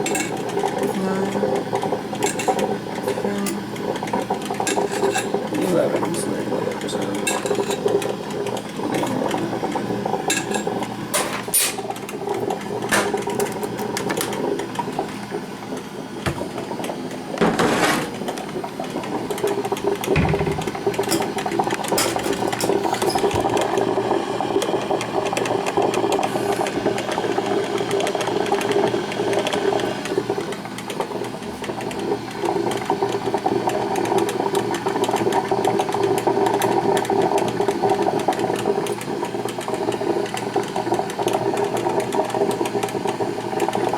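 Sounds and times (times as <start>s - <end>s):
coffee maker brewing: 0.0s - 43.9s
loud knock: 20.1s - 20.9s.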